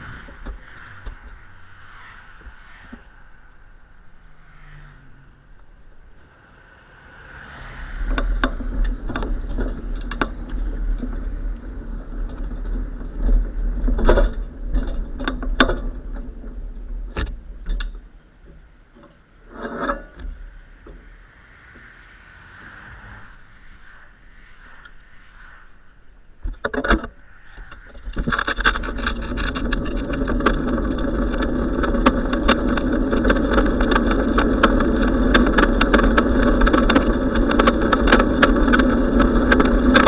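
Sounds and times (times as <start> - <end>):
wind and road rumble: 0.0 - 40.0
bicycle frame rattling and clicking: 6.1 - 21.2, 26.5 - 40.0.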